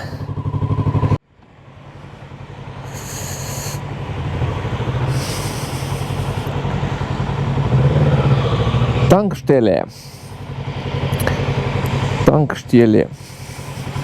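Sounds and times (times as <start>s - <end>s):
motorcycle engine cruising: 0.0s - 14.0s
high hiss: 2.8s - 3.9s, 5.0s - 6.5s, 13.2s - 14.0s.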